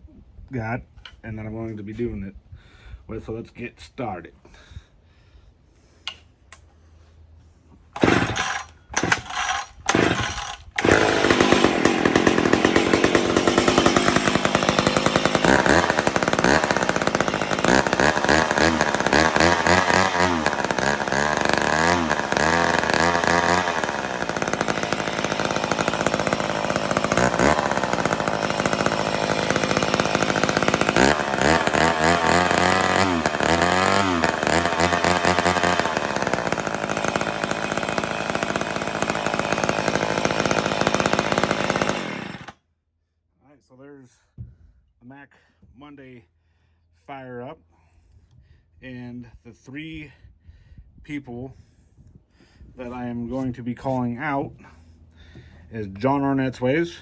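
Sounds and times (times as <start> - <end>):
chainsaw starting and revving: 8.0 - 42.6.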